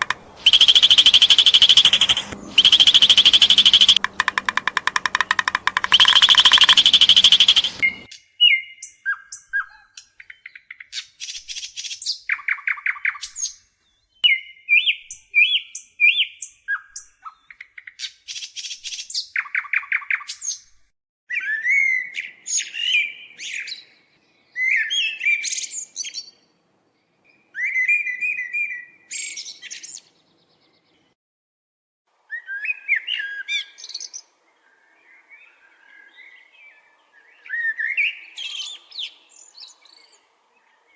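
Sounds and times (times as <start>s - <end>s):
songbird buzzing trill: 0.0s - 8.1s
songbird chirps and whistles: 0.0s - 26.5s, 27.2s - 31.1s, 32.3s - 40.8s.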